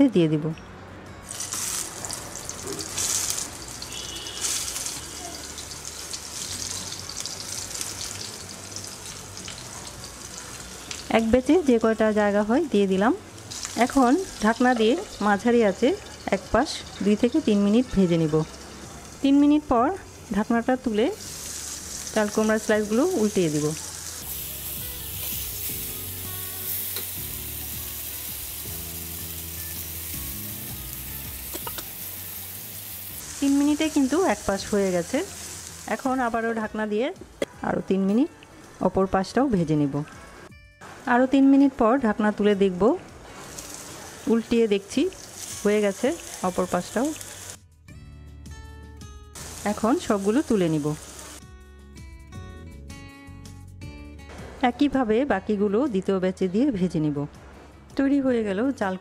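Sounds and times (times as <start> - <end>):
soft background music: 0.0 - 59.0
vegetable slices sizzling in oil: 1.3 - 36.9, 43.3 - 47.6, 49.4 - 51.4.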